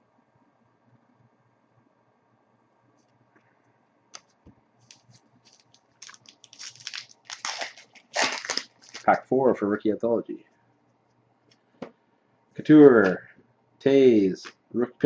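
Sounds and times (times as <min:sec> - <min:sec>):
foil wrapper crinkling and tearing: 0:04.8 - 0:09.2.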